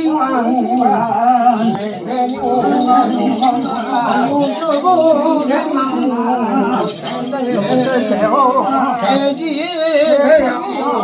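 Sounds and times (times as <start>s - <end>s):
person chanting in wavering tones: 0.0s - 11.0s.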